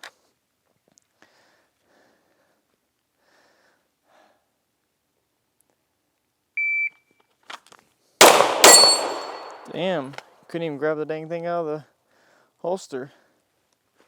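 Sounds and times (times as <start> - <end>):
loud handgun shot: 8.2 - 9.9.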